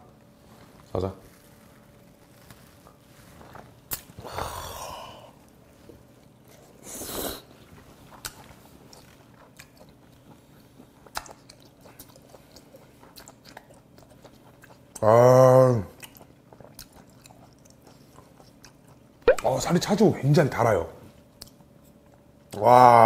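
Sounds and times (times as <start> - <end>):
close chewing of raw fish: 7.6 - 15.2, 15.9 - 19.2.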